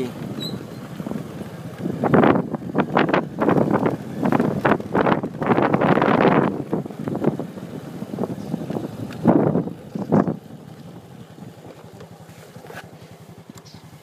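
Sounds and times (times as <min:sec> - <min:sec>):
wind buffeting microphone: 0:00.0 - 0:11.0
motorbike engine running: 0:00.0 - 0:14.0.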